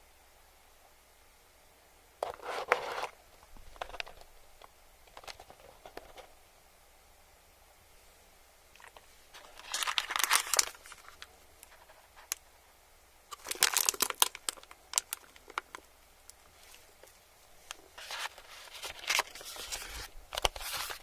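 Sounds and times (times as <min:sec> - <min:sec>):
crinkling and crackling: 0:02.2 - 0:06.3, 0:08.7 - 0:12.6, 0:13.3 - 0:21.0.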